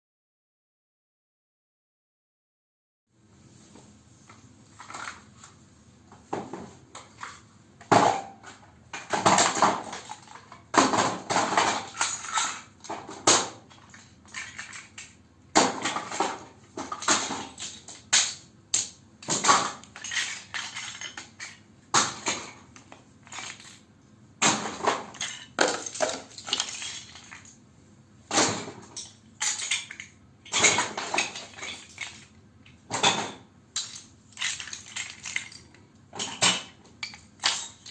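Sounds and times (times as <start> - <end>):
plastic bricks clattering: 9.0 - 23.9, 24.5 - 27.6, 28.4 - 37.9.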